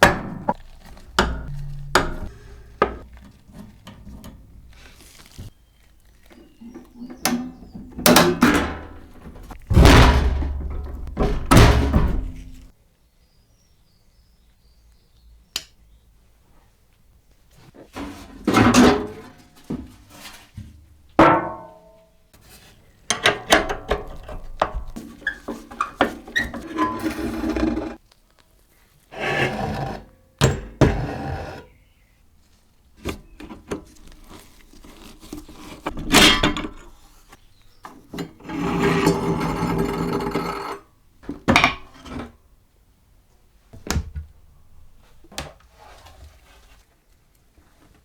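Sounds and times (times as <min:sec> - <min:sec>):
mechanical parts clattering: 0:00.0 - 0:05.5, 0:06.1 - 0:12.7.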